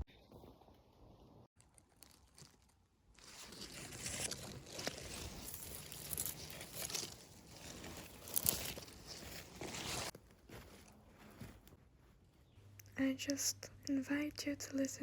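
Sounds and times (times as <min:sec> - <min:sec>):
crunching and crackling: 0:01.6 - 0:11.8.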